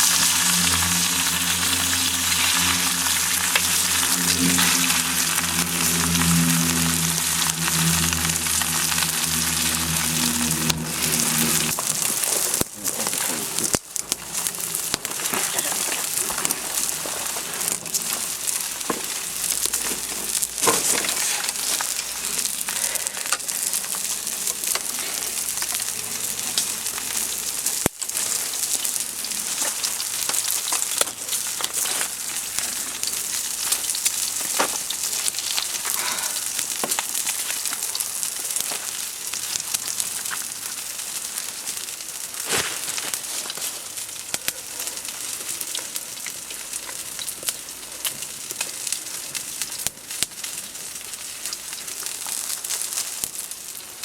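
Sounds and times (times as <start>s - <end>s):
food sizzling in a pan: 0.0s - 54.0s
campfire pops and crackles: 0.1s - 54.0s.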